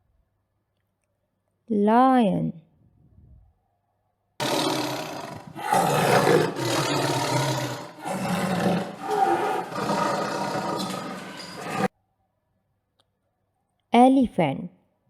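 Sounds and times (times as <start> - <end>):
lion roaring: 4.4 - 11.9.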